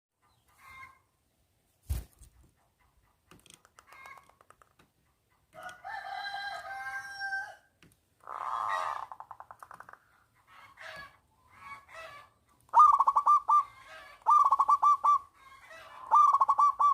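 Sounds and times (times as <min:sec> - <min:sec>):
rooster crowing: 0:05.6 - 0:07.7
doves cooing: 0:12.7 - 0:16.9.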